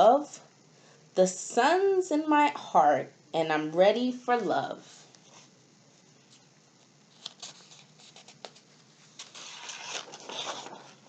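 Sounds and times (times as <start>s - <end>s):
paper pages rustling: 6.3s - 11.0s.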